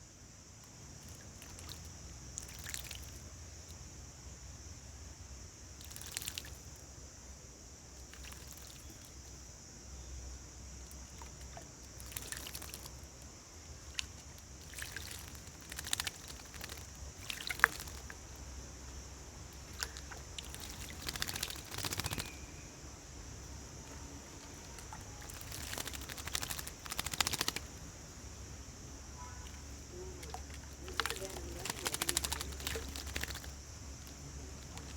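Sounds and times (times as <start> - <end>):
bird splashing in water: 1.0 - 3.2, 5.8 - 6.7, 8.0 - 9.2, 10.8 - 18.5, 19.4 - 22.6, 23.6 - 28.0, 29.2 - 34.9
steady high hiss: 3.2 - 34.9.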